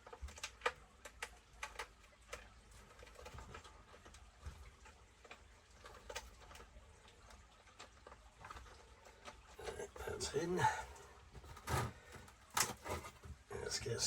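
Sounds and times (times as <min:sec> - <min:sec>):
small parts clicking and tapping: 0:00.0 - 0:09.6.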